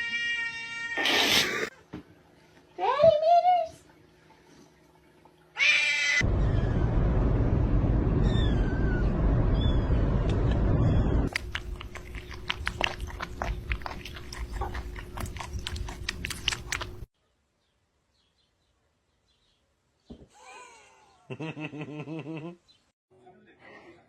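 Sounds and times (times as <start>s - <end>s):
loud low rumbling: 6.3s - 11.3s
pet chewing with crisp clicks: 11.3s - 17.1s.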